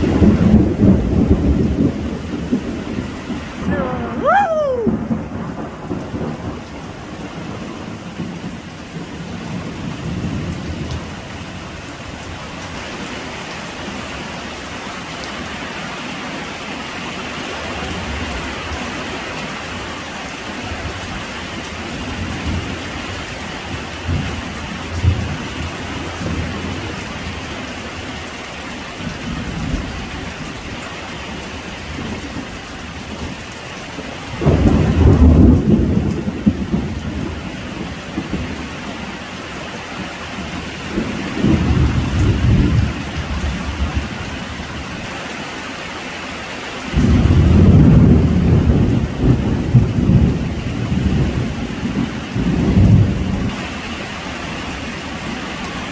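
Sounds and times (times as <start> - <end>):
thunder rumbling: 0.0 - 7.3, 46.9 - 53.5
heavy rain: 0.0 - 55.9.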